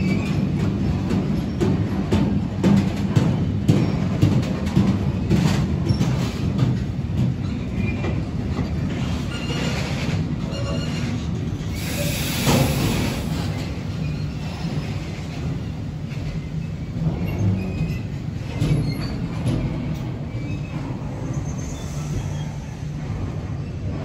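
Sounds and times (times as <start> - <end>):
train wheels rumbling on rails: 0.0 - 24.0
wheel squeals: 9.0 - 12.2.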